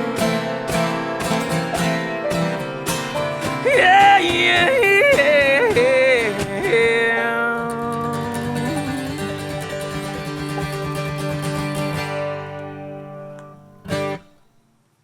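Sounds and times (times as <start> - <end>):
acoustic guitar strumming: 0.0 - 14.9
yodel-like wordless vocal: 3.3 - 10.3
bluegrass band playing: 8.0 - 12.7.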